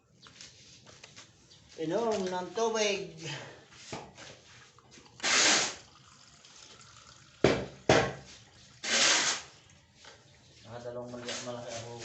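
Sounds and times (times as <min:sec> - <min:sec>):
person drinking water: 0:04.3 - 0:07.4.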